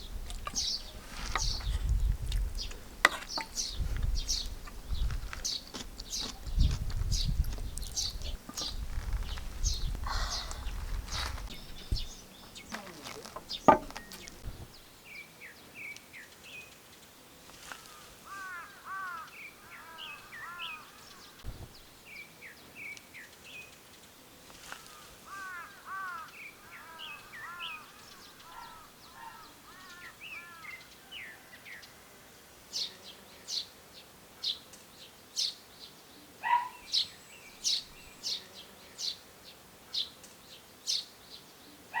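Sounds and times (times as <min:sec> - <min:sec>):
birds chirping: 0:00.0 - 0:16.0, 0:24.8 - 0:31.5, 0:36.2 - 0:39.2
sharp knock: 0:12.0 - 0:14.7.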